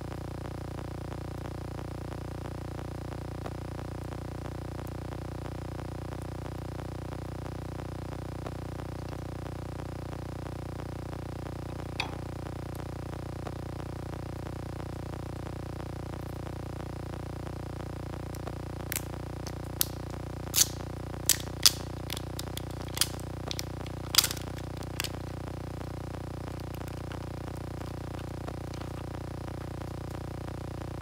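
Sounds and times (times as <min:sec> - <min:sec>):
steady low hum: 0:00.0 - 0:31.0
small sharp clicks and snaps: 0:18.3 - 0:25.4.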